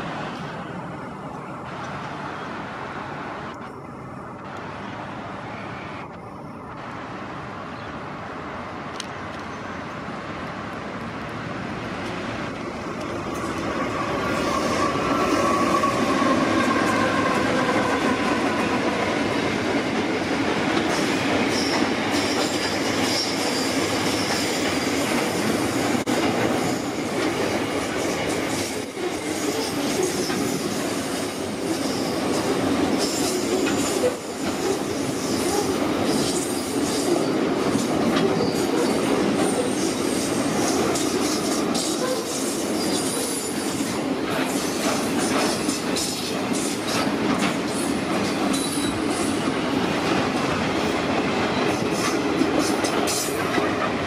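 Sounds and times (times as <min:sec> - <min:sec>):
freight train wagons clattering: 0:44.3 - 0:54.0.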